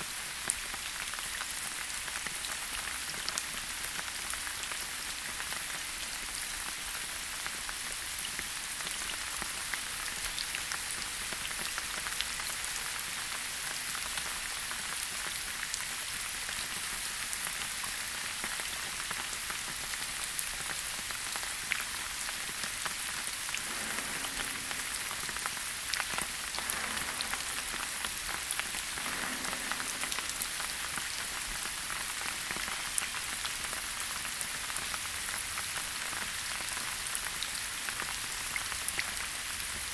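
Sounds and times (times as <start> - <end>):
rain falling in a forest: 23.2 - 39.9.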